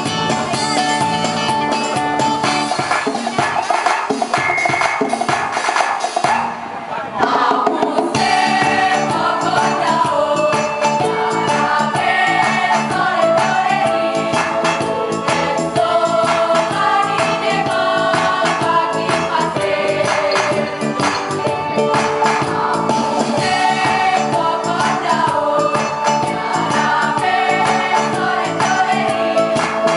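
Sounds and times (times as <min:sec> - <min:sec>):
steady percussion beat: 0:00.0 - 0:29.9
choir singing: 0:07.2 - 0:29.9.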